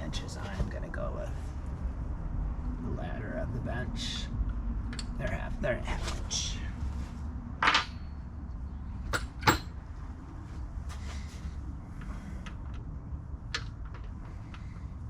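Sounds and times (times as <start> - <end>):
low steady rumble: 0.0 - 15.0
hand tools clicking and knocking: 9.1 - 9.7.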